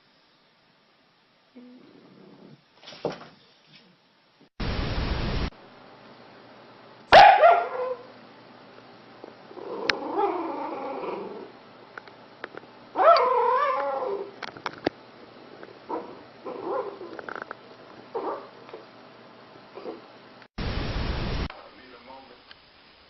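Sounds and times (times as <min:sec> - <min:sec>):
dog howling calls: 0:13.0 - 0:14.4.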